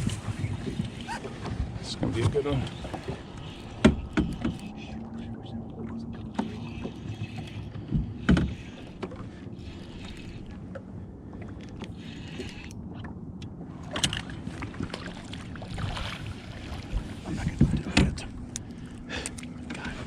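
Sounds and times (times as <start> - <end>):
low rumble of wind and water: 0.0 - 20.0
sharp knocks on boat: 17.3 - 18.3.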